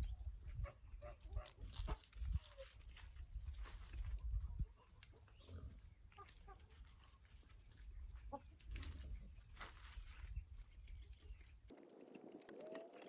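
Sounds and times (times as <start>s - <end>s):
chickens clucking: 4.0s - 9.6s, 10.6s - 13.0s.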